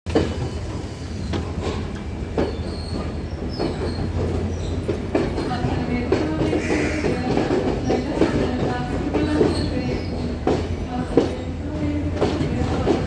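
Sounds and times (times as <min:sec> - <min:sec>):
train rumbling on rails: 0:00.0 - 0:13.0
faint high wheel squeals: 0:00.4 - 0:05.1.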